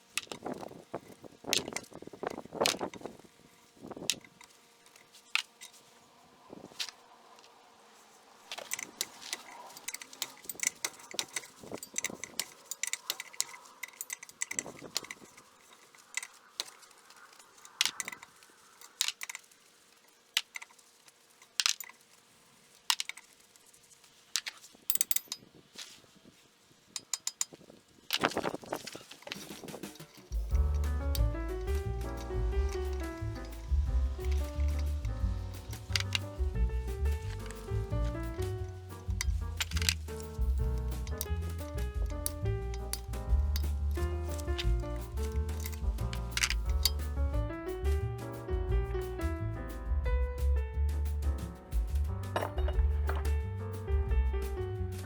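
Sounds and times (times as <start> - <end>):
metallic clinks of hand tools: 8.6 - 15.4, 24.9 - 25.5
metal knocks: 51.7 - 53.4.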